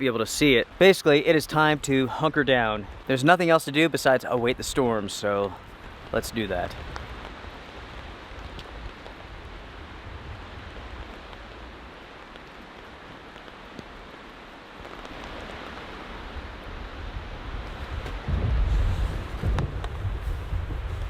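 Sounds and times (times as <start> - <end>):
rain and wind noise: 0.0 - 21.0
drops ticking on a tarp: 11.0 - 15.9.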